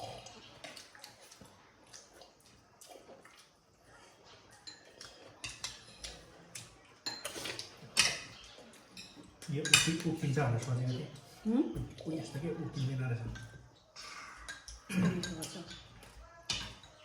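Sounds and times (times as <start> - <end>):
spoons clinking against dishes: 4.5 - 11.9, 14.4 - 17.0.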